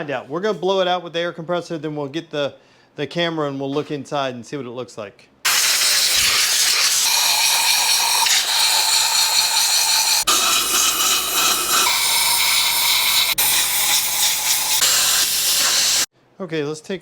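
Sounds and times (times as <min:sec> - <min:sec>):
air blow gun hissing: 0:05.5 - 0:16.1.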